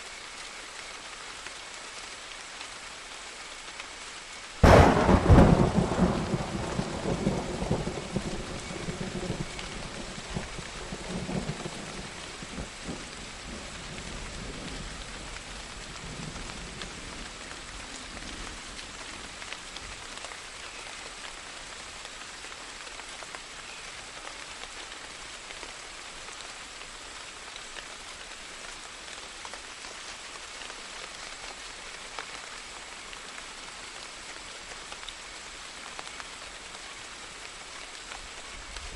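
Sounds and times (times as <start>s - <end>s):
steady rain falling: 0.0s - 38.9s
thunder rumbling: 4.6s - 14.9s.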